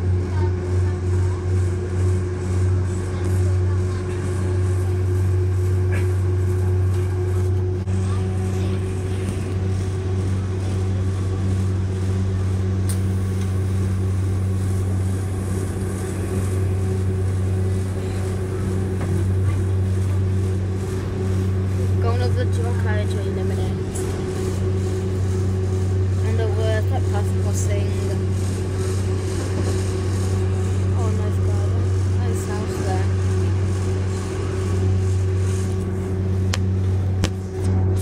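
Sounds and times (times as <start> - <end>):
rail and wind noise: 0.0 - 38.0
train interior drone: 0.0 - 38.0.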